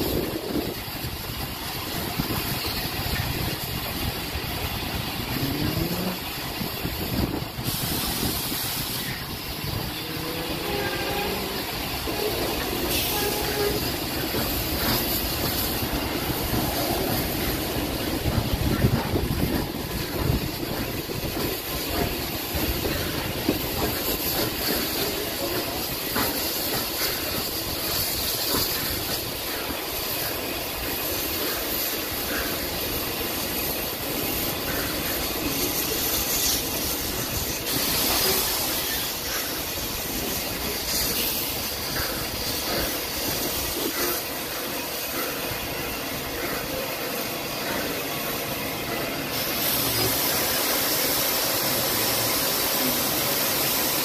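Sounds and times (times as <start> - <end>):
bright hiss: 0.0 - 54.0
train rumble on board: 0.0 - 54.0.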